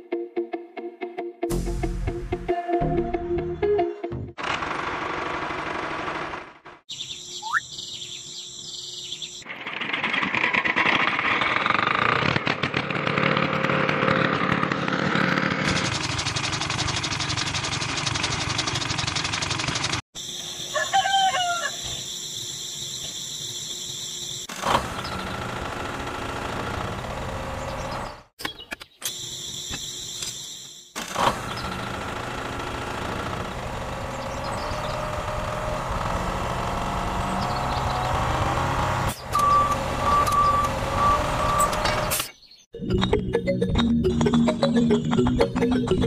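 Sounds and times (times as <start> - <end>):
rooster crowing: 20.6 - 22.0
chaff cutter whirring: 24.5 - 28.2, 31.0 - 42.2.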